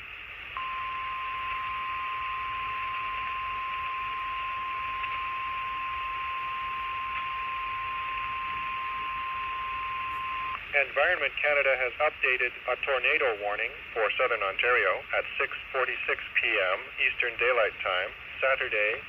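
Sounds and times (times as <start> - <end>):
radio hiss: 0.0 - 19.0
steady warning alarm tone: 0.6 - 10.6.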